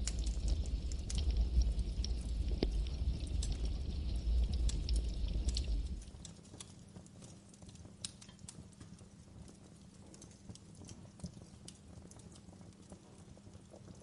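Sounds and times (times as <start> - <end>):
low rumble: 0.0 - 6.2
campfire crackling: 0.0 - 14.0.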